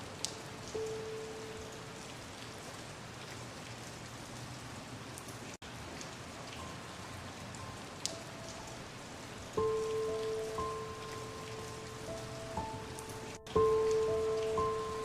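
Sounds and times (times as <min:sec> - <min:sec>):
water drip: 0:00.0 - 0:04.0, 0:05.2 - 0:15.0
steady rain pattering: 0:00.0 - 0:15.0
faint held musical notes: 0:06.6 - 0:15.0.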